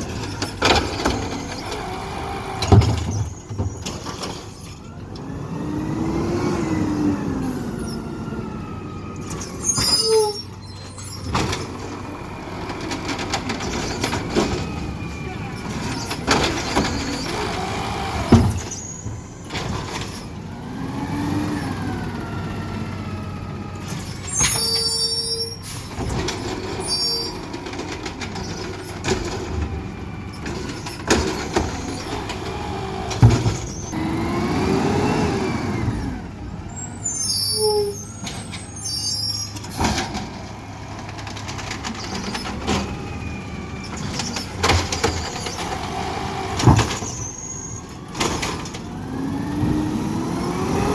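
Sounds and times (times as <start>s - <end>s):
garbage truck engine running: 0.0s - 50.9s
brief high squeals: 9.3s - 11.3s, 24.0s - 25.9s, 36.8s - 39.6s, 47.0s - 47.9s.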